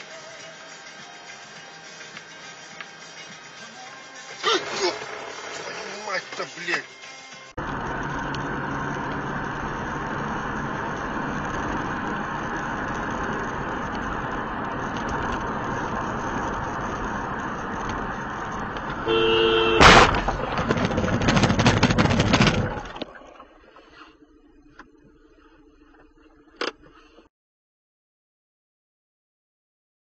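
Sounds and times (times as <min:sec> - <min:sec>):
car road and engine noise: 0:00.0 - 0:27.3
car horn: 0:19.0 - 0:20.2
crash of impact: 0:19.8 - 0:23.1
crunching and rattling: 0:19.8 - 0:23.4.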